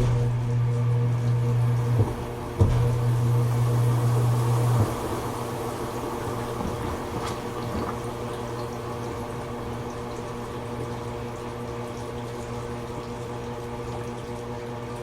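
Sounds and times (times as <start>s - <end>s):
washing machine hum: 0.0s - 15.0s
water splashing in washing machine: 0.0s - 15.0s.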